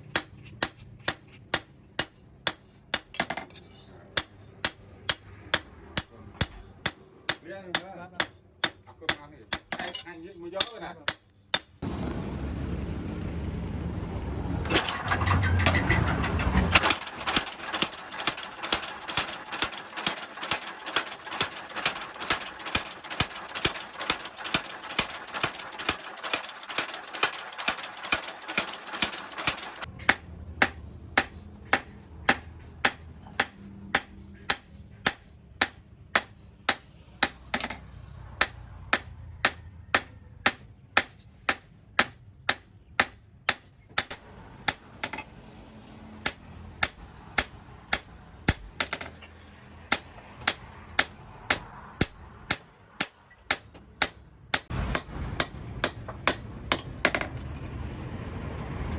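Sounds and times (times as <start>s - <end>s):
hammer striking steel on anvil: 0.0s - 11.8s, 14.7s - 37.8s, 38.4s - 45.3s, 46.2s - 49.1s, 49.9s - 57.3s
low rumble: 11.8s - 16.8s.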